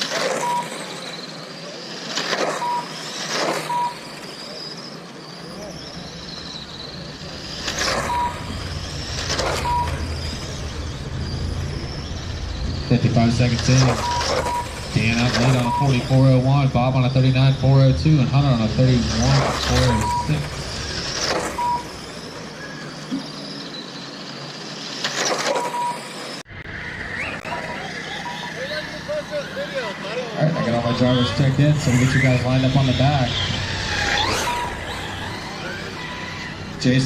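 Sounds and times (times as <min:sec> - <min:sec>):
rc car motors whining: 0:00.0 - 0:37.0
short lap timer beep: 0:00.2 - 0:01.0, 0:02.4 - 0:04.5, 0:07.6 - 0:10.8, 0:13.5 - 0:16.4, 0:19.2 - 0:22.1, 0:25.5 - 0:26.2, 0:34.2 - 0:35.1.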